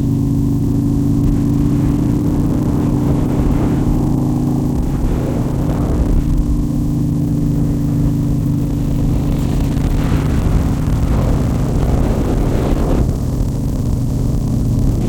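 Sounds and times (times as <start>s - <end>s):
heavy low rumble: 0.0s - 15.0s
motorcycle engine running: 0.0s - 15.0s.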